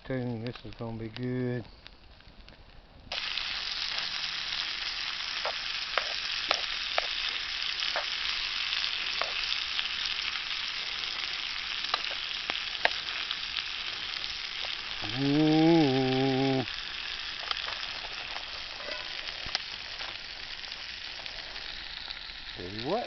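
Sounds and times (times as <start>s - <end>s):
food sizzling: 3.1s - 23.0s
sharp pops: 5.4s - 8.3s, 9.1s - 9.6s, 11.8s - 14.9s.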